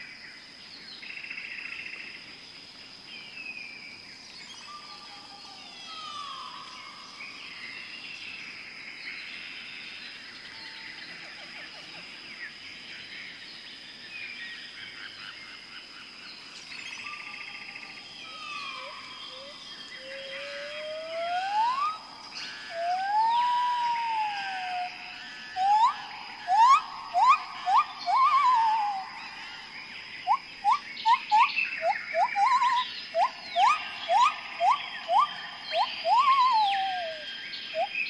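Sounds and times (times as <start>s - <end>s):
small birds chirping: 11.9s - 38.0s
bird whistles: 20.3s - 24.9s, 25.5s - 29.0s, 30.3s - 38.0s.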